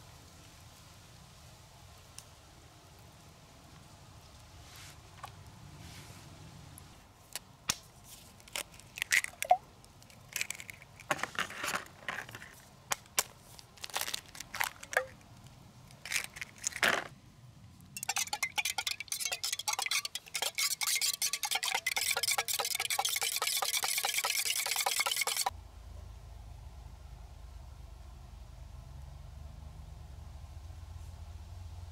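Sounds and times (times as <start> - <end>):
metal and glass cookware clinking: 18.0 - 25.5.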